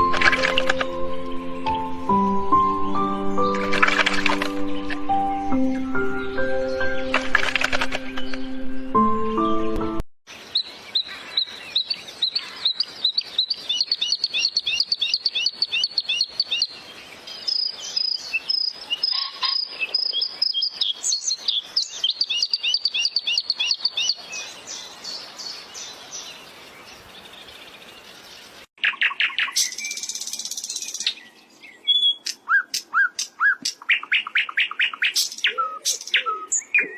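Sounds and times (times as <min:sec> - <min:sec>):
small birds chirping: 0:10.3 - 0:36.9.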